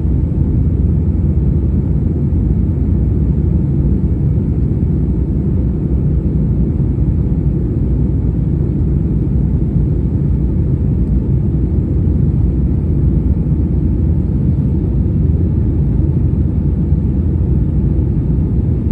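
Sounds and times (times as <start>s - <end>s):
airliner engines rumbling: 0.0s - 18.9s.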